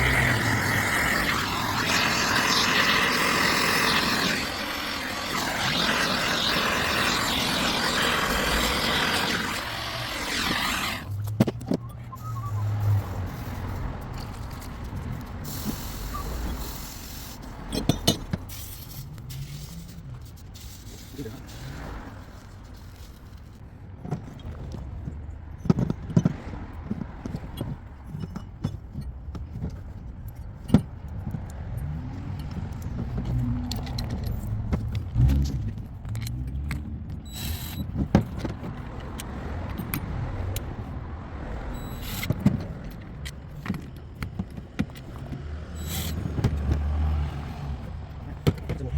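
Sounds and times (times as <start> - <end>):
hard objects clinking and knocking: 17.7 - 18.5.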